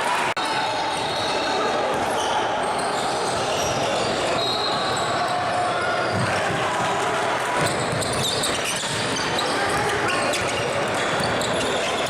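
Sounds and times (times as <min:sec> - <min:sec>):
voices echoing in hall: 0:00.0 - 0:12.0
basketball bouncing on court: 0:07.6 - 0:11.9.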